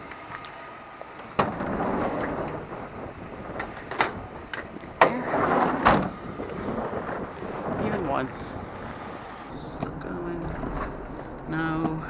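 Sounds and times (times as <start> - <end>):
van rumbling: 0.0 - 12.0
sharp knocks and clunks: 3.6 - 6.2.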